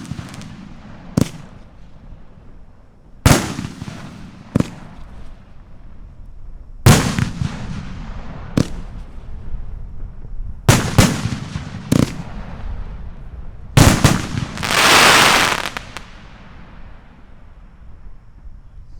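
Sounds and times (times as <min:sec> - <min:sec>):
firework shells bursting: 0:13.8 - 0:17.0
loud hissing rush: 0:14.2 - 0:16.5.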